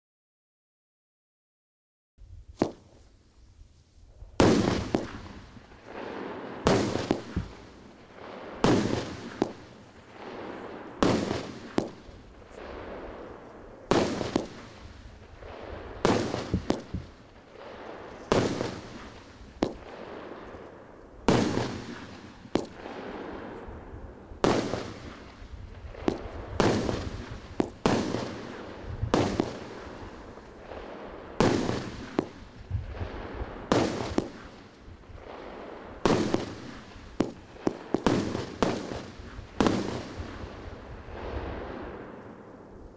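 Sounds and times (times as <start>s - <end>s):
firework bangs with rumble: 4.4s - 5.4s, 15.4s - 17.7s, 24.4s - 29.8s.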